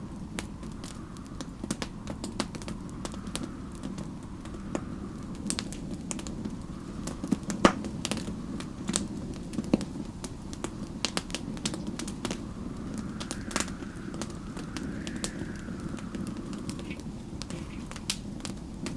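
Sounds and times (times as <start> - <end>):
faint whistling wind: 0.0 - 18.9
steady low rush: 0.0 - 18.9
wood fire crackling and popping: 0.0 - 18.9.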